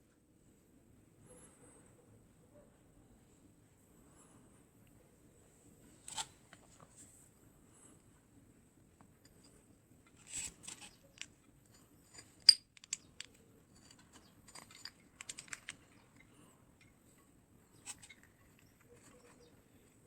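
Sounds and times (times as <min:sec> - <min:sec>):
small parts scraping: 0:09.2 - 0:16.9, 0:17.8 - 0:20.0
small hard parts clicking: 0:10.2 - 0:16.9.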